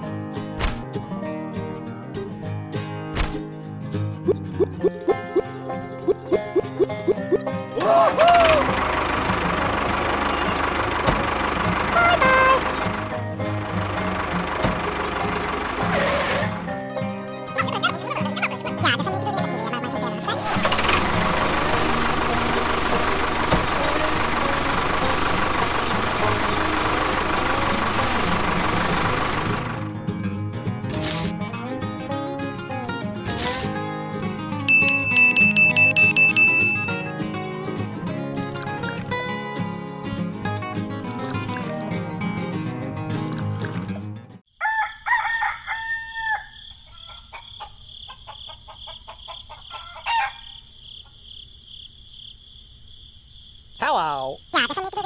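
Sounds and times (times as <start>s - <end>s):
rooster crowing: 44.5s - 50.8s
crickets chirring: 44.5s - 55.0s.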